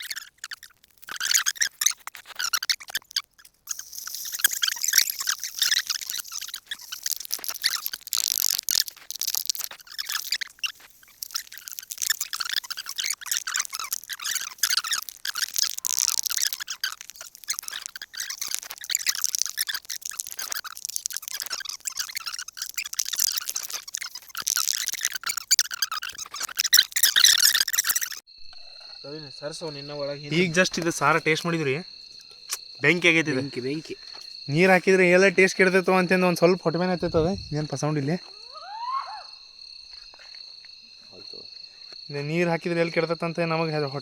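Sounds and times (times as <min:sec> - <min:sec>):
food crackling over wood fire: 0:00.0 - 0:29.0.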